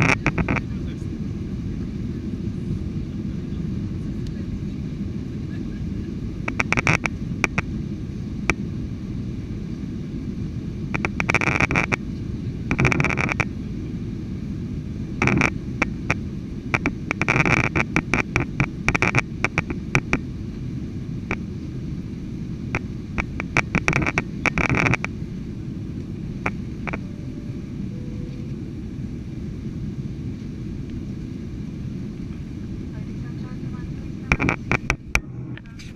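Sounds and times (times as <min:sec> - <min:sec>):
jet engine rumble and airflow: 0:00.0 - 0:35.9.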